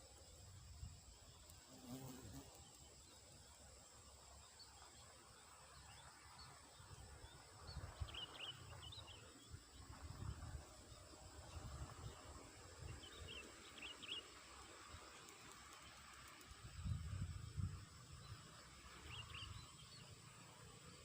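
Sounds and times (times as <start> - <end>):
bird chirps: 13.0 - 14.4, 19.0 - 20.2.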